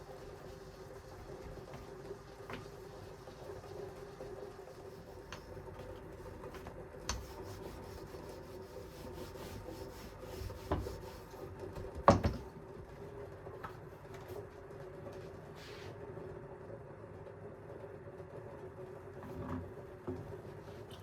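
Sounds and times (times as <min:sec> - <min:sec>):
kitchen taps and rubbing: 0:10.5 - 0:11.1, 0:11.8 - 0:12.5.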